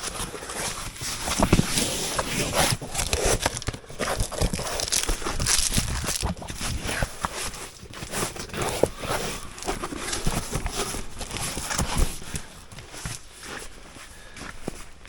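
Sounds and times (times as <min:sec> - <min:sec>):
fabric and gear rustling: 0:00.0 - 0:15.0.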